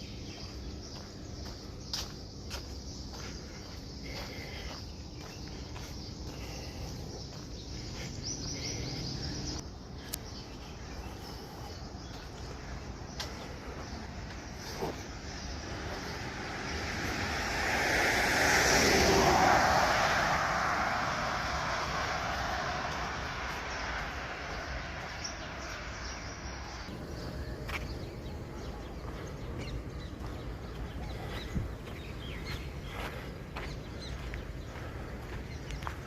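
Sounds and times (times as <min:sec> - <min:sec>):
faint footsteps on a path: 0:00.0 - 0:36.0
vehicle passing by: 0:13.2 - 0:36.0.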